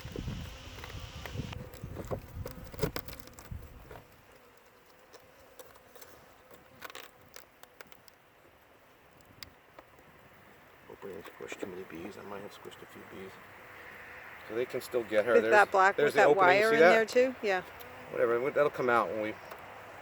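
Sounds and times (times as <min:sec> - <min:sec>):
faint hum of honeybees: 0:00.0 - 0:20.0
package handling clicks and rustling: 0:01.6 - 0:08.2.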